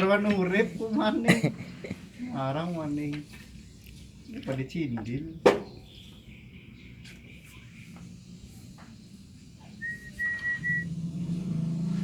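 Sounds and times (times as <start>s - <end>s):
short high whistle: 9.8s - 10.8s.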